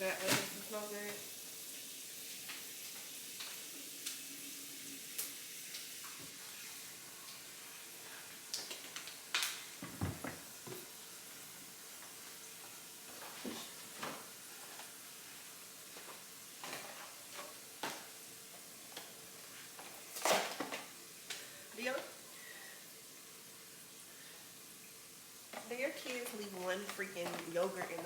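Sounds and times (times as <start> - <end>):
faint steady hiss: 0.0 - 28.0
food packaging knocks and rustles: 9.8 - 10.9.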